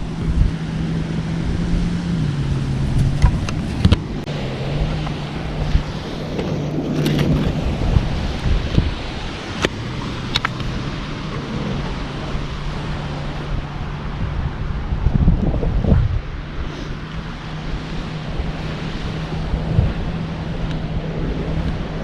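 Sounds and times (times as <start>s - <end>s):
surf breaking on beach: 0.0s - 22.0s
wind buffeting microphone: 0.0s - 22.0s.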